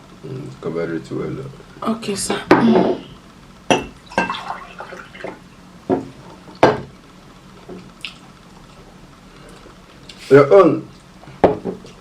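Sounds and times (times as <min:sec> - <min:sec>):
dishes clinking: 0:03.7 - 0:06.0
wet eating sounds: 0:08.0 - 0:08.3.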